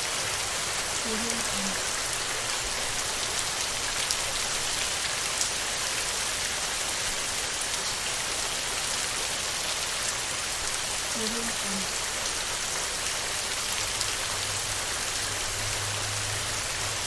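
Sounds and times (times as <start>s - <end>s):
heavy rain on a tin roof: 0.0s - 17.0s.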